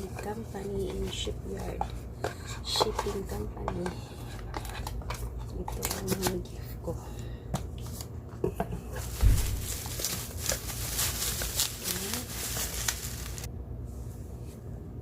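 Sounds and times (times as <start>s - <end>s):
packaging rustling: 8.9s - 13.5s
dull thump: 9.1s - 9.9s.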